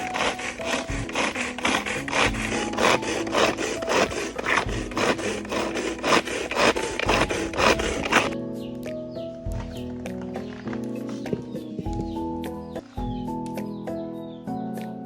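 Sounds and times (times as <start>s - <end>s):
sawing or rasping strokes: 0.0s - 8.4s
background music: 0.0s - 15.0s.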